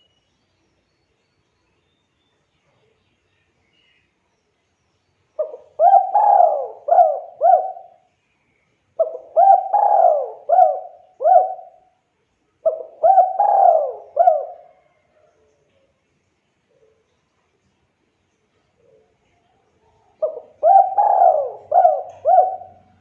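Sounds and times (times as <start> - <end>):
dove cooing: 5.4 - 8.0, 9.0 - 11.9, 12.6 - 15.0, 20.2 - 23.0.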